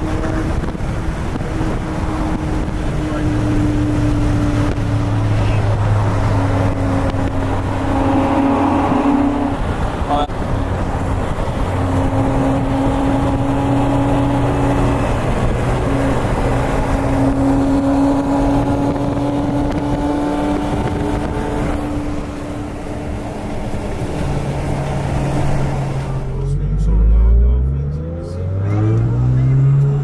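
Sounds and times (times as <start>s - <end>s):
car engine humming: 0.0s - 30.0s
road and wind noise: 0.0s - 30.0s.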